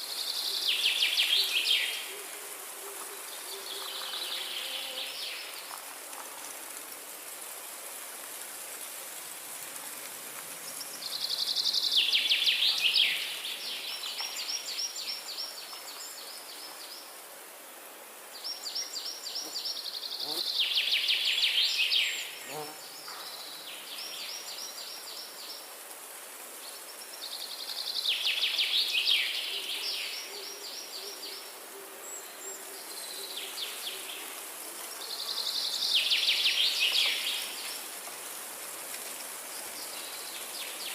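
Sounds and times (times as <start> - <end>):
forest ambience hiss: 0.0 - 40.9.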